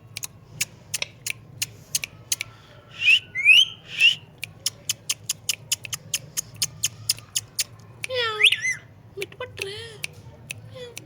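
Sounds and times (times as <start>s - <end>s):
parrot whistling: 3.0s - 4.2s, 8.3s - 8.8s
sharp clicks: 4.4s - 8.2s.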